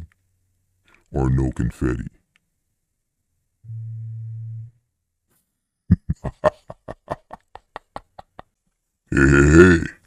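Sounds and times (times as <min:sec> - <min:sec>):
low hum-like tone: 0:03.6 - 0:05.1.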